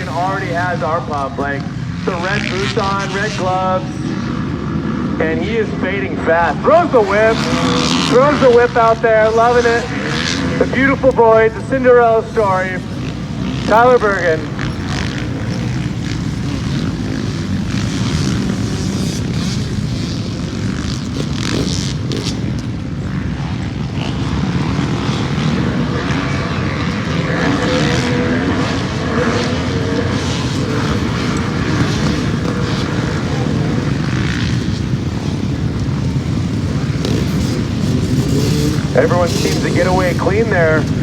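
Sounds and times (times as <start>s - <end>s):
motocross bikes revving: 0.0s - 41.0s.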